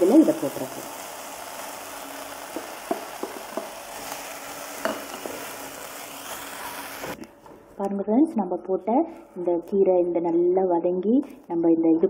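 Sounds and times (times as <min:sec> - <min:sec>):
leaves sizzling in oil: 0:00.0 - 0:07.2
wooden spatula knocking pan: 0:02.5 - 0:03.7.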